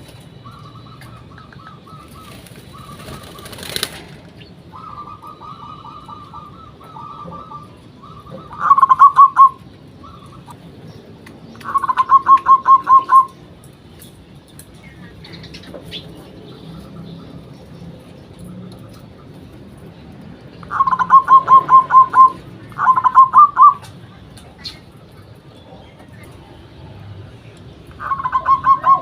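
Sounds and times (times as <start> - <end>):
doves cooing: 0.0 - 10.9, 11.5 - 13.6, 20.6 - 29.0.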